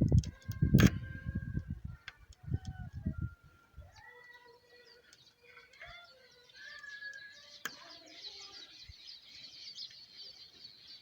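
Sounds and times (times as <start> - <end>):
birds chirping: 0.0 - 11.0
sharp click: 0.1 - 1.0.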